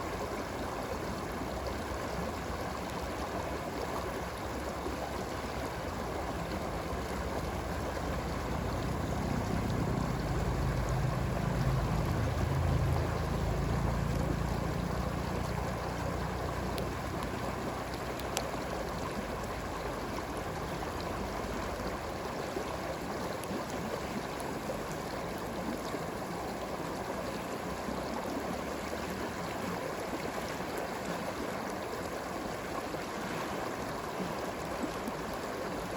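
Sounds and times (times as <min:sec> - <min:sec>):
stream water flowing: 0:00.0 - 0:35.9
campfire crackles: 0:00.5 - 0:26.0
low rumble: 0:07.2 - 0:16.7.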